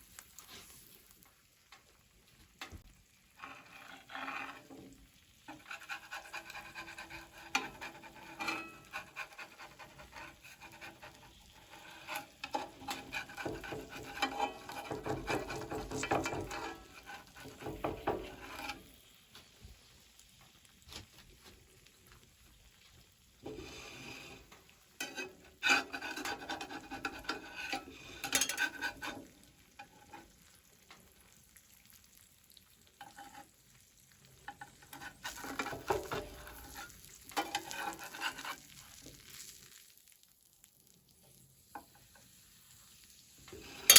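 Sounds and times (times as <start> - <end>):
food sizzling: 0.0 - 43.9
utensil scraping a pan: 3.3 - 19.1, 23.4 - 30.5, 33.0 - 33.6, 34.3 - 39.5, 43.4 - 43.9.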